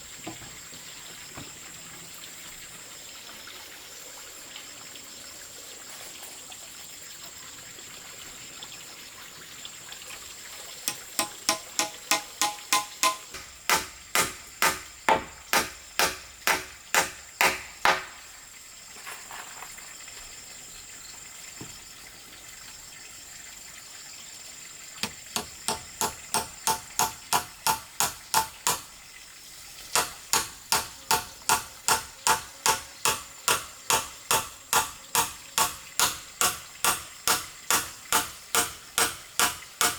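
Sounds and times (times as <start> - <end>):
hammer blows on wood: 10.9 - 18.2, 30.0 - 39.9.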